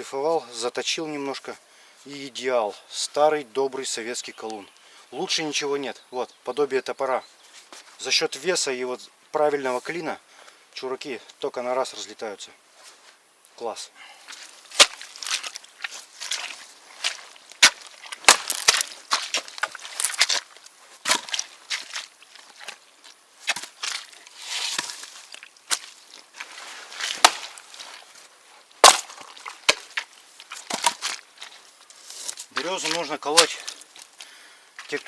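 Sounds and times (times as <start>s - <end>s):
maul splitting wood: 14.7s - 15.4s, 17.6s - 20.4s, 23.5s - 28.1s, 28.8s - 31.2s
split wood clattering down: 17.6s - 20.4s, 26.4s - 28.0s, 28.8s - 31.2s.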